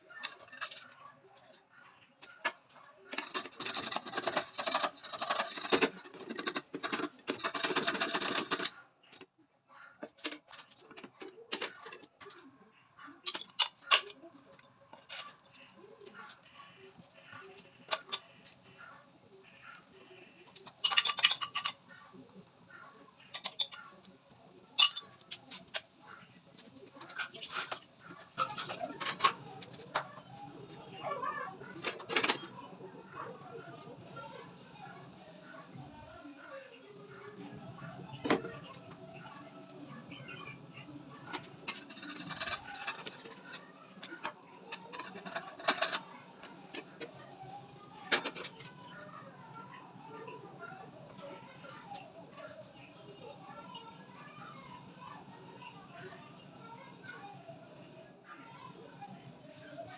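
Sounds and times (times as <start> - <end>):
utensil scraping cookware: 0.1 - 1.0, 2.4 - 8.8, 13.2 - 33.8, 41.2 - 47.2.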